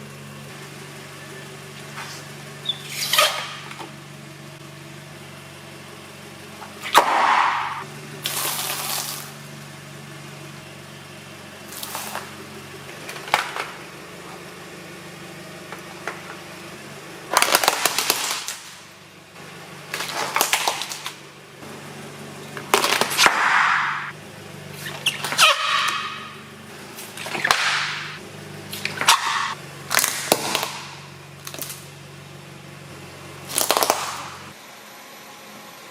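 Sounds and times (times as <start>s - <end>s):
car engine running: 0.0s - 35.9s
tyres crushing brittle objects: 17.3s - 18.8s, 19.9s - 21.2s, 22.6s - 24.0s, 28.8s - 31.8s, 33.5s - 34.4s.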